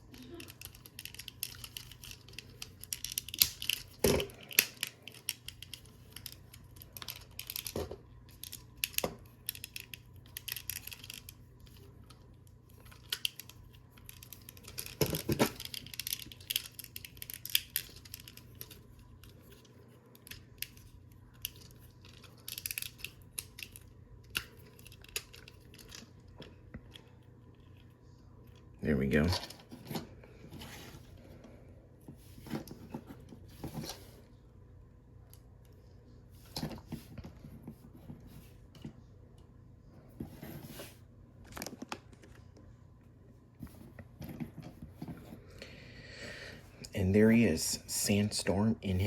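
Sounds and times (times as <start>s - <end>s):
plastic toy parts clicking: 0.1s - 12.2s, 12.8s - 26.0s.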